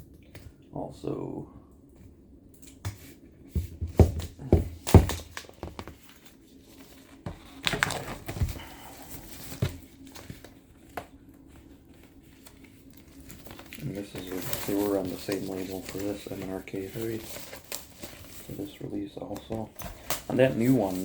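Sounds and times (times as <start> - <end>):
plastic rustling: 3.0 - 21.0
plastic wrapping crinkling: 4.8 - 21.0.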